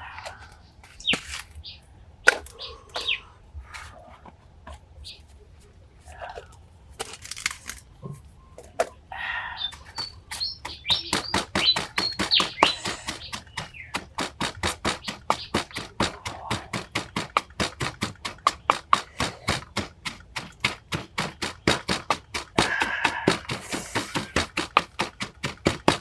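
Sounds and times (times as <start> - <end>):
birds chirping: 0.0 - 26.0
rapid chopping strikes: 10.0 - 26.0.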